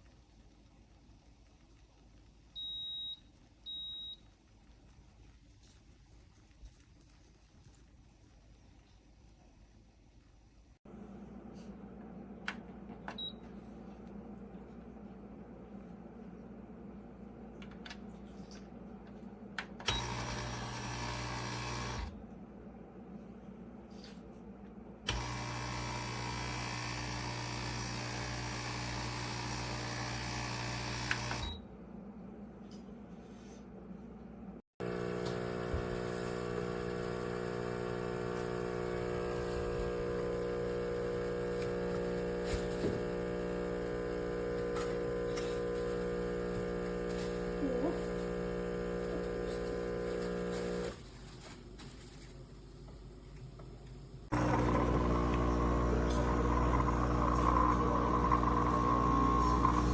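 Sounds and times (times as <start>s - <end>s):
espresso machine pump buzzing: 19.9s - 22.2s, 25.1s - 31.5s, 34.8s - 51.1s, 54.3s - 59.9s.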